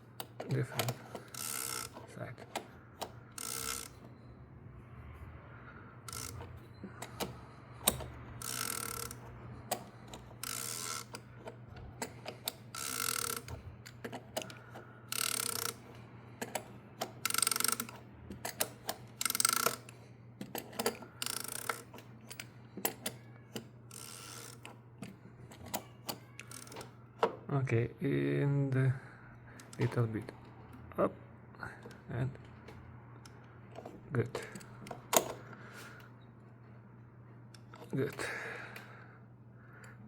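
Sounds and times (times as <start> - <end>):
ratchet wrench rasping: 0.2 - 4.0, 6.1 - 11.3, 12.0 - 19.9, 20.6 - 23.1, 23.9 - 24.7, 25.7 - 26.9.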